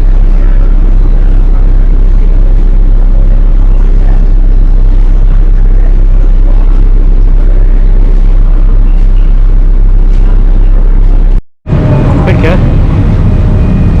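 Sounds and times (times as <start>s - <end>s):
ferry engines droning: 0.0s - 14.0s
wind buffeting microphone: 11.7s - 14.0s.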